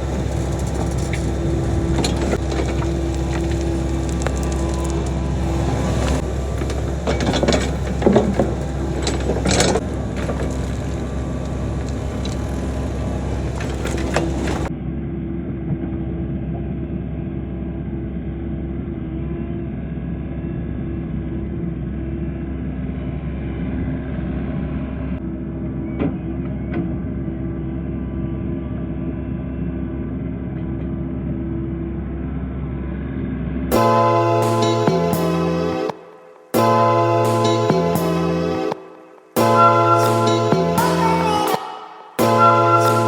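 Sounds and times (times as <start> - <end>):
bucket crunching through dirt and rock: 0.0 - 14.7
diesel engine running: 0.0 - 43.0.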